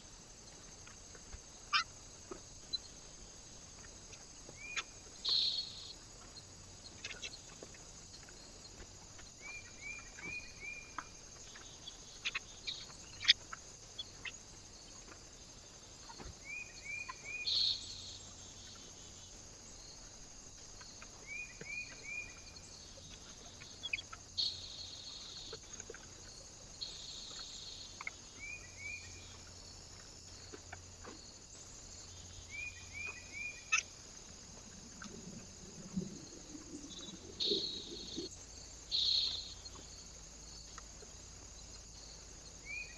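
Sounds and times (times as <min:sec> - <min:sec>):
bird call: 0:35.8 - 0:38.3.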